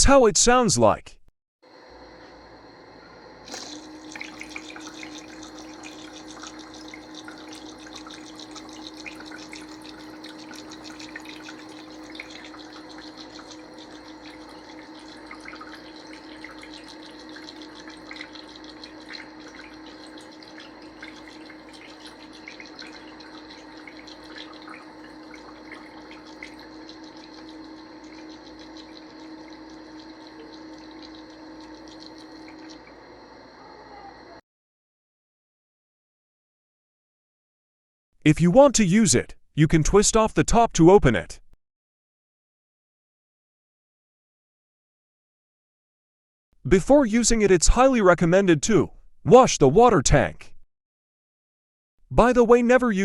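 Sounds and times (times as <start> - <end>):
humidifier low hum: 1.8 - 34.4
water droplets dripping: 3.0 - 33.3.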